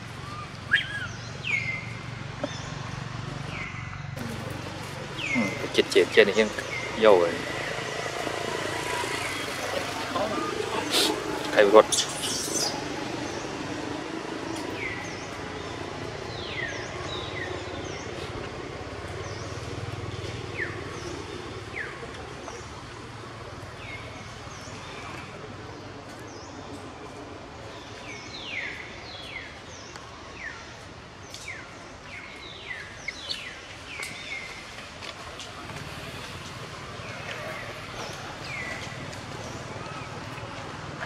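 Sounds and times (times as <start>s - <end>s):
birds chirping: 0.0s - 41.0s
outdoor ambient noise: 0.0s - 41.0s.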